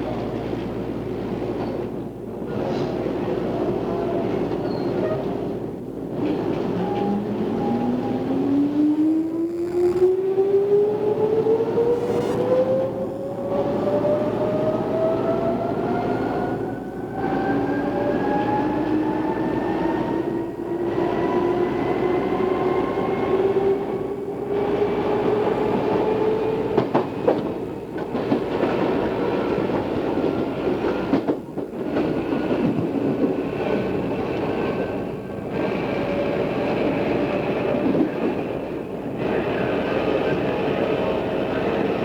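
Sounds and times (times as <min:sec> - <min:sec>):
electric train motor whine: 0:09.2 - 0:13.0.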